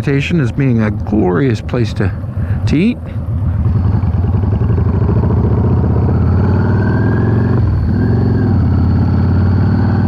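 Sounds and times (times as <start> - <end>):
motorcycle engine running: 2.2 - 10.0.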